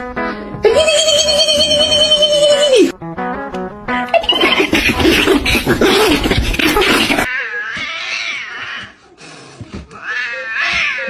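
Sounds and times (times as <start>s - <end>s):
cats yowling: 4.1s - 9.0s, 9.9s - 11.0s.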